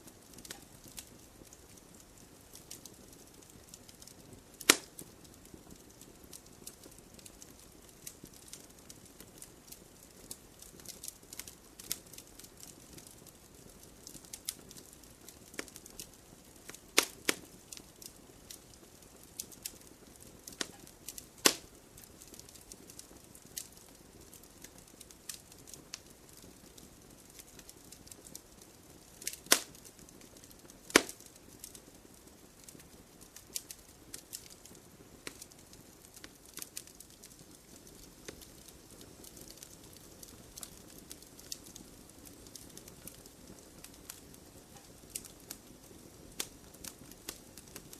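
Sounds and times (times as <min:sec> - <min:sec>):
campfire crackling: 0:00.0 - 0:47.9
loud sharp pops from fire: 0:00.0 - 0:47.9.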